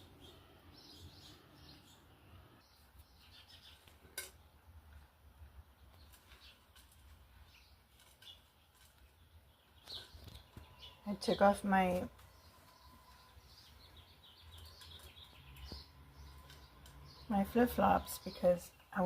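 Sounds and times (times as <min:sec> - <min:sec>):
faint bird chirps: 0:07.4 - 0:19.0.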